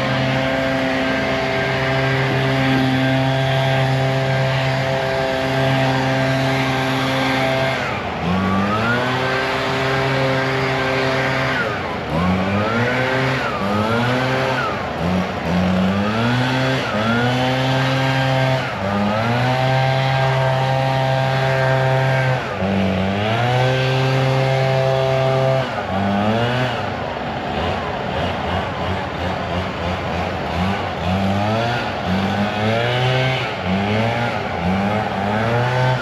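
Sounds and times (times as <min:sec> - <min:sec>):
large engine revving: 0:00.0 - 0:36.0.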